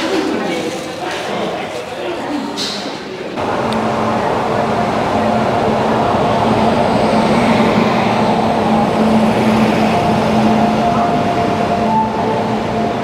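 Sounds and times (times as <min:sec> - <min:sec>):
steady hum with held tones: 0:03.4 - 0:13.0.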